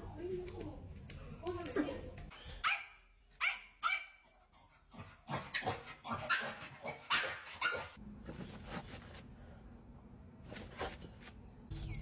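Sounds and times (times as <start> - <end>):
dog barking: 2.6 - 4.3, 5.3 - 8.0.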